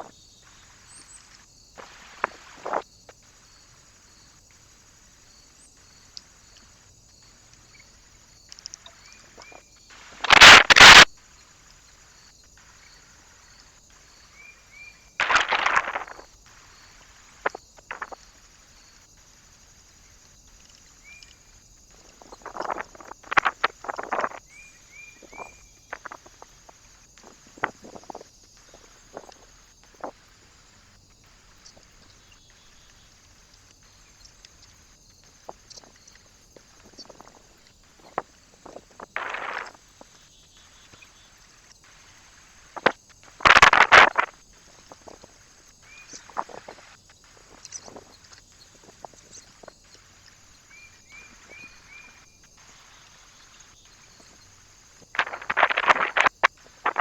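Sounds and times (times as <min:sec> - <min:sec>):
faint bird chirps: 0:00.0 - 0:02.8, 0:03.4 - 0:55.5
birds scratching and pecking: 0:15.2 - 0:16.3, 0:32.8 - 0:40.2, 0:42.8 - 0:45.4, 0:46.0 - 0:50.5, 0:55.1 - 0:57.0
rustling and scraping: 0:15.2 - 0:16.3.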